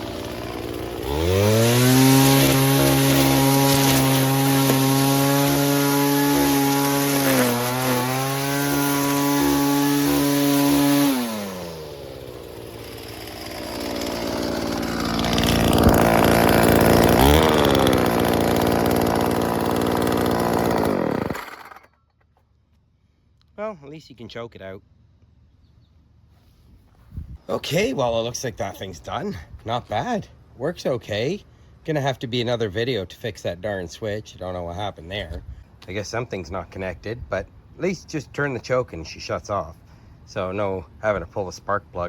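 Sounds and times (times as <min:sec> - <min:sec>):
string trimmer engine revving: 0:00.0 - 0:21.9.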